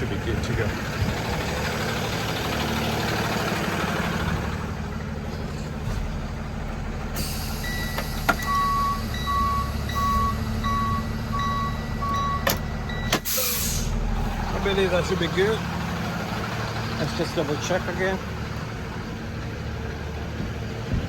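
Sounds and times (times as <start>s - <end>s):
truck engine running: 0.0s - 21.0s
reversing alarm beeping: 7.2s - 13.8s.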